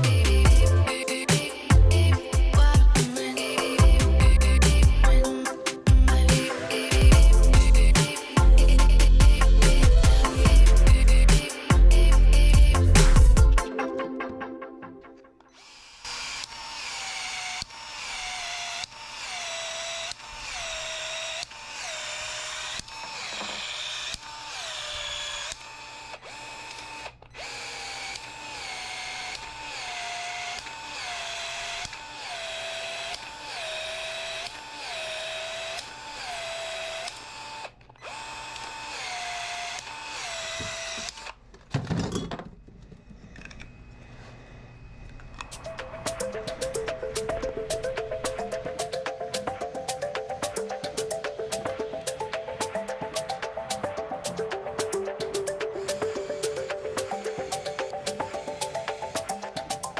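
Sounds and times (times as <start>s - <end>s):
power drill bursts: 15.5s - 41.4s, 55.5s - 59.9s.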